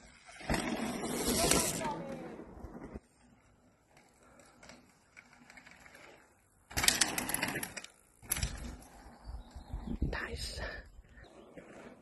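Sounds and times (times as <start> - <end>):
mountain bike rattling past: 0.0 - 9.5.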